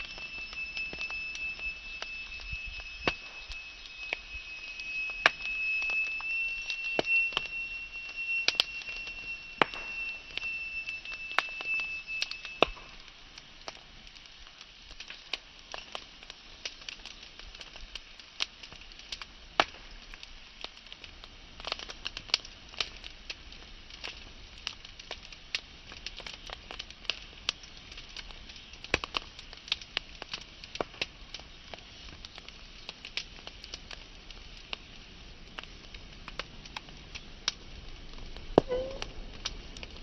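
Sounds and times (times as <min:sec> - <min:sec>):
thin high whistle: 0:00.0 - 0:13.1, 0:38.6 - 0:39.1
wood fire crackling and popping: 0:00.0 - 0:40.0.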